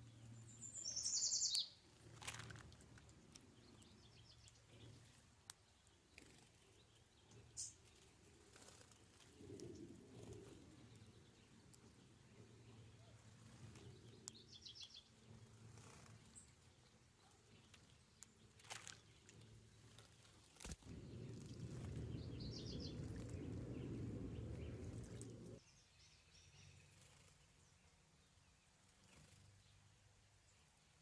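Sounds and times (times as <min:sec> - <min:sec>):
bird chirps: 0:00.2 - 0:01.8, 0:20.8 - 0:27.0
low rumble: 0:20.8 - 0:25.6.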